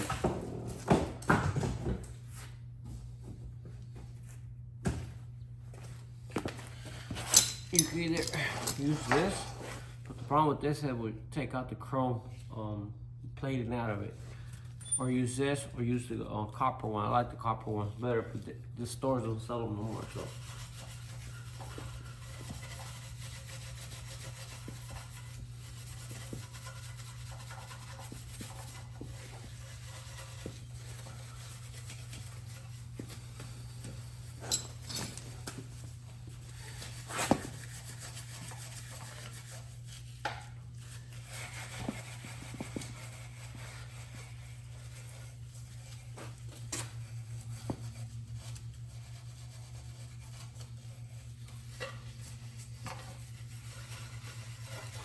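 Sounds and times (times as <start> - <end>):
steady low hum: 0.0 - 55.0
wire brush scrubbing metal: 40.8 - 55.0.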